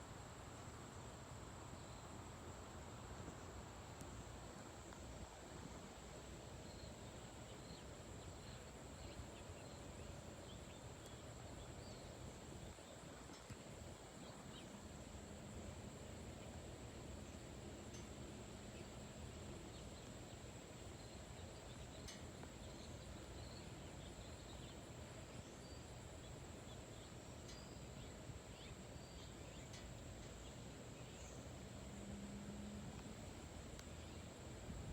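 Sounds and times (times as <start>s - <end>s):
insect drone: 0.0s - 34.9s
faint bird chirps: 17.2s - 31.8s.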